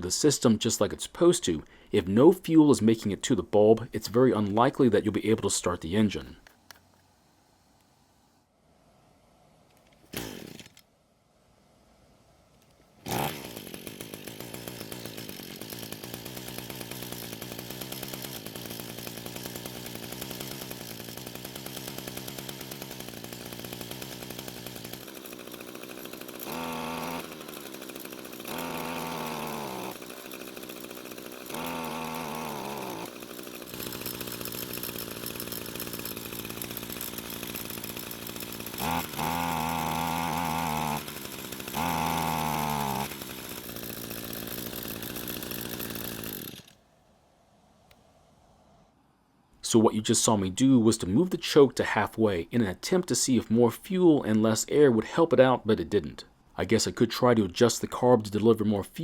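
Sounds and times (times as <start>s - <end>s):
string trimmer engine revving: 10.1s - 10.8s, 13.0s - 46.8s.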